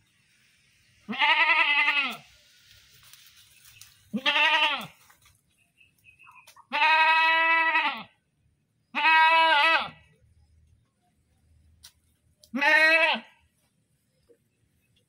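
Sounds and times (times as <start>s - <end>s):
goat bleating: 1.1s - 2.3s, 4.1s - 5.0s, 6.6s - 8.2s, 8.9s - 10.0s, 12.4s - 13.4s.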